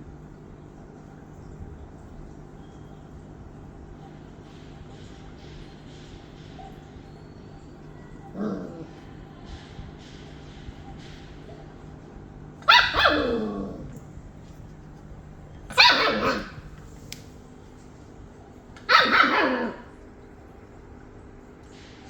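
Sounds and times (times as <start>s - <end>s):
dog barking: 12.6s - 14.0s, 15.7s - 16.8s, 18.8s - 20.0s.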